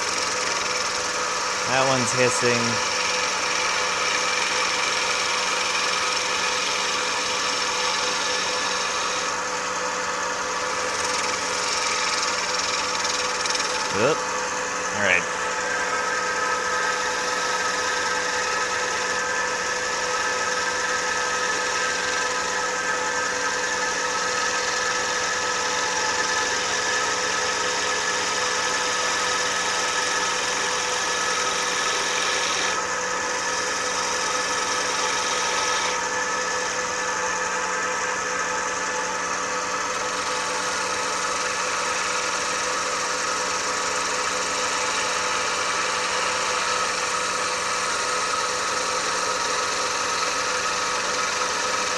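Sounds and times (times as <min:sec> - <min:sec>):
lathe motor humming: 0:00.0 - 0:51.9
tool cutting wood hissing: 0:01.6 - 0:09.5, 0:10.6 - 0:22.7, 0:24.5 - 0:36.8.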